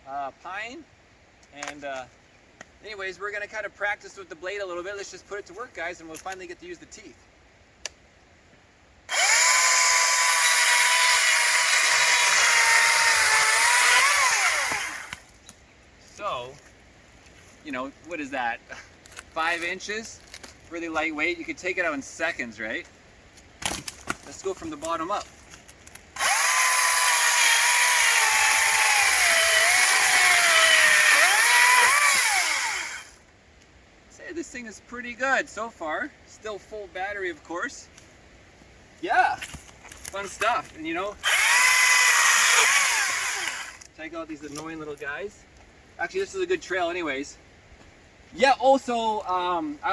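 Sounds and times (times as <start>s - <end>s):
electric chainsaw cutting log: 9.1s - 15.2s, 26.2s - 33.2s, 41.2s - 43.8s.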